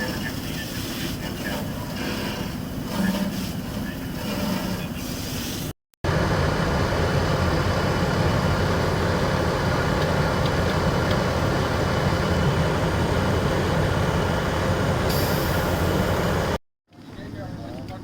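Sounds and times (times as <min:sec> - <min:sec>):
large vehicle engine rumbling: 0:06.0 - 0:16.6.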